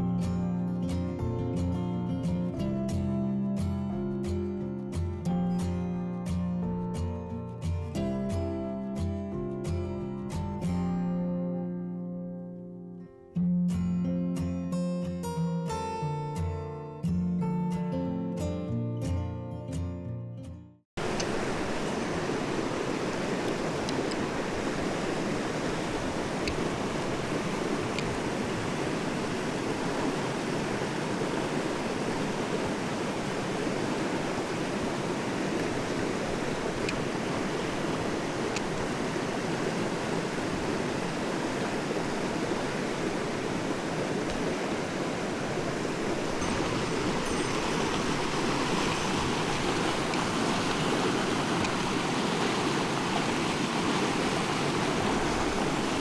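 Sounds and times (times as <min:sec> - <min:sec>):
mountain stream rushing: 0:21.0 - 0:56.0.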